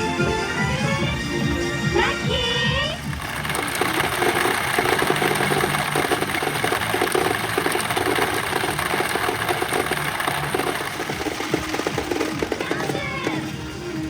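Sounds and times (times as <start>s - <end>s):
pachinko balls clattering: 3.0s - 14.0s.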